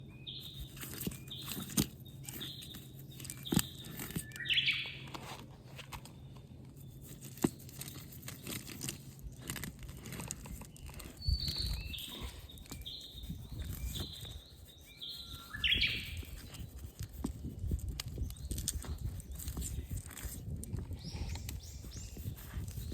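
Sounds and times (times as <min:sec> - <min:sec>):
bird singing high chirps: 0:00.0 - 0:05.1, 0:10.7 - 0:16.7, 0:18.1 - 0:20.0, 0:20.7 - 0:22.9
clicks and crunching noises: 0:00.5 - 0:14.4, 0:16.1 - 0:22.9.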